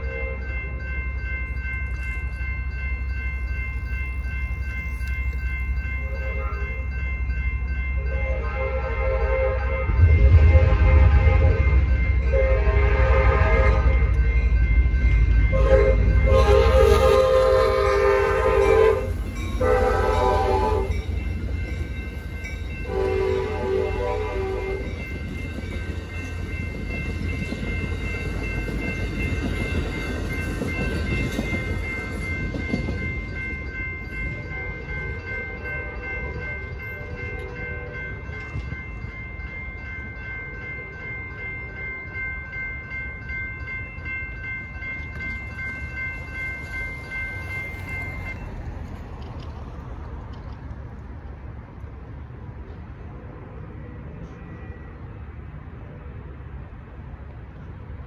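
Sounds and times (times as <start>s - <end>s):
crossing bell ringing: 0.0s - 58.0s
train rumble: 0.0s - 58.0s
train horn blasts: 8.0s - 14.2s, 15.5s - 21.0s, 22.8s - 24.9s.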